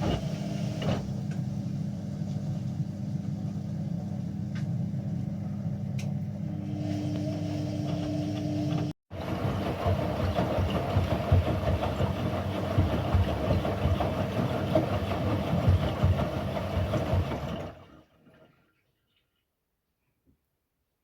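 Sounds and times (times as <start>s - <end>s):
low thumps in washing machine: 0.0s - 1.4s, 7.8s - 17.8s
washing machine motor and drum rumble: 0.0s - 18.1s.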